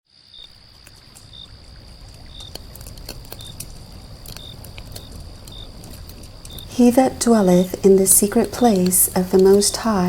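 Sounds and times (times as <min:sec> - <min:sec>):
scattered clicks: 0:02.2 - 0:10.0.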